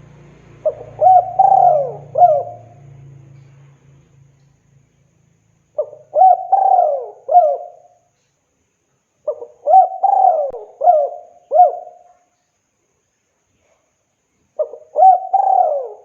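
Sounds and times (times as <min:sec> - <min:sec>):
dove cooing: 0:00.6 - 0:02.9, 0:05.8 - 0:08.0, 0:09.2 - 0:12.1, 0:14.6 - 0:16.0.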